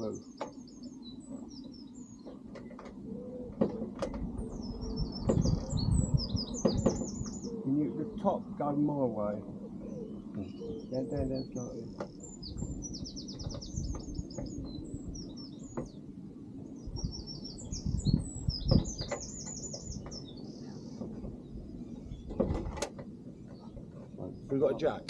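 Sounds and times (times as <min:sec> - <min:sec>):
small birds chirping: 0:00.0 - 0:25.0
car door knocks: 0:05.2 - 0:05.7, 0:06.6 - 0:07.2.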